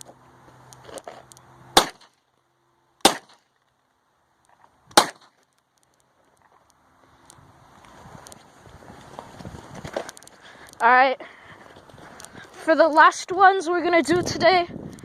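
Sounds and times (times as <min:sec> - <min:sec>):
loud gunshots: 0:01.8 - 0:02.1, 0:03.0 - 0:03.4, 0:05.0 - 0:05.3.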